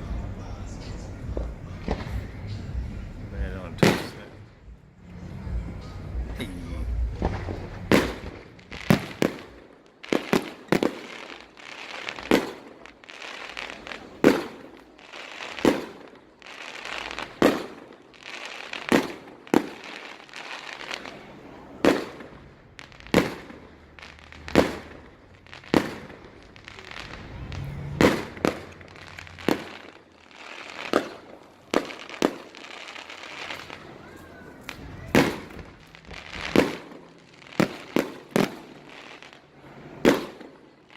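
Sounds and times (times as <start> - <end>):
fireworks bursting with bangs: 0.0 - 40.9
fireworks crackling: 0.0 - 40.9.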